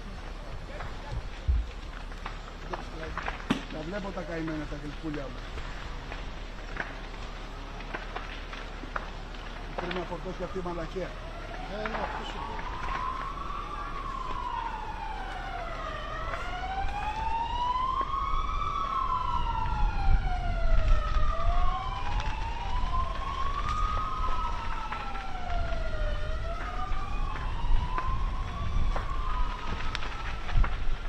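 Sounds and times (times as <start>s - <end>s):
wind rumble on microphone: 0.0s - 2.2s, 16.5s - 31.0s
siren wailing: 0.8s - 31.0s
second siren wail: 5.2s - 31.0s.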